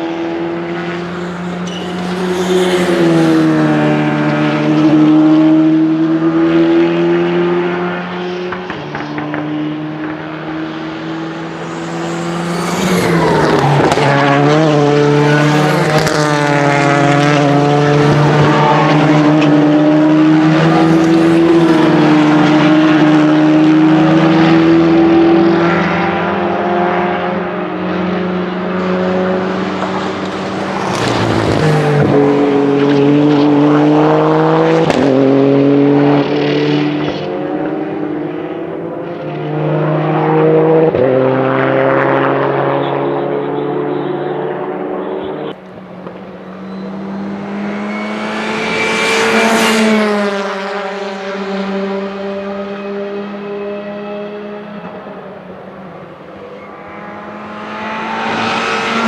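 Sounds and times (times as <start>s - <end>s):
rally car engines accelerating: 0.0s - 59.0s
car passing by: 0.1s - 43.1s, 44.7s - 55.0s, 56.0s - 59.0s.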